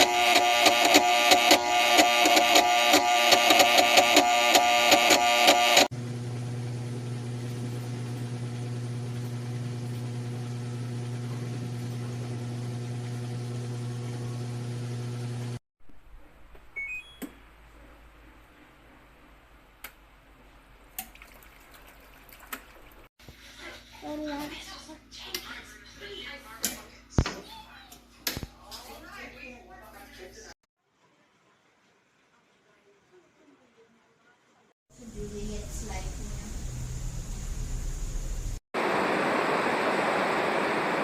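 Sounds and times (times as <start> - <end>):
drain pump motor humming: 0.0 - 15.6, 35.0 - 41.0.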